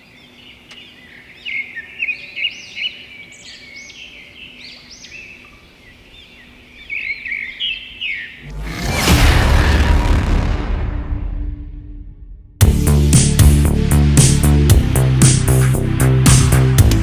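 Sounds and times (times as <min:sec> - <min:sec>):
birds chirping and calling: 0:00.0 - 0:08.5.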